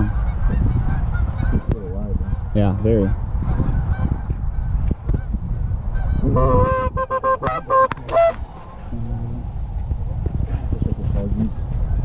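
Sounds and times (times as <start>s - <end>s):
geese honking: 0.0s - 9.4s
steady low rumble: 0.0s - 12.0s.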